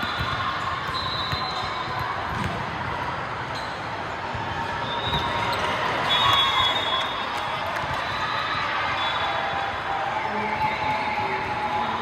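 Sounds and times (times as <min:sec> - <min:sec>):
basketball bouncing on court: 0:00.0 - 0:02.8
murmur of voices: 0:07.6 - 0:12.0.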